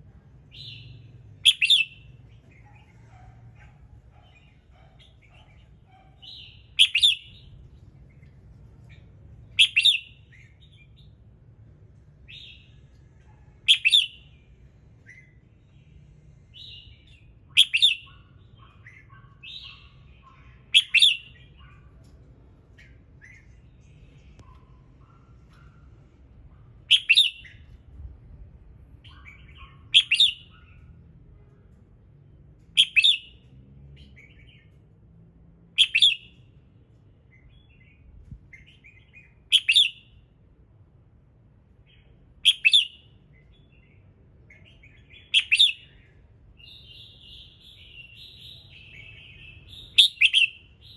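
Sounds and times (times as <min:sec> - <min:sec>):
bird whistling phrases: 0:00.6 - 0:02.1, 0:06.2 - 0:07.5, 0:09.6 - 0:10.3, 0:13.7 - 0:14.3, 0:17.6 - 0:18.2, 0:20.6 - 0:21.4, 0:26.9 - 0:27.6, 0:29.1 - 0:30.6, 0:32.8 - 0:33.4, 0:35.8 - 0:36.3, 0:39.2 - 0:40.1, 0:42.4 - 0:43.0, 0:45.1 - 0:46.0, 0:46.7 - 0:50.9
bird chattering notes: 0:06.2 - 0:07.4, 0:29.1 - 0:30.5.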